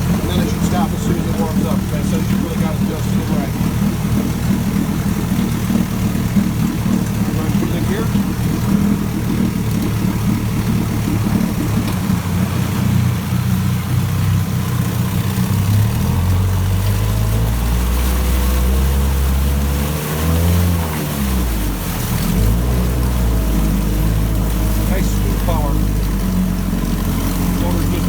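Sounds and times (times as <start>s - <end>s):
outboard motor running: 0.0s - 28.0s.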